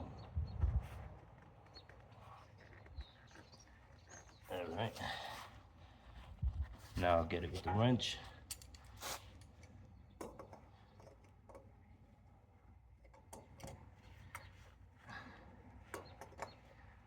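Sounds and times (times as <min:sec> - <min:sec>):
faint clicks and metal taps: 0:08.5 - 0:11.9, 0:13.0 - 0:14.7.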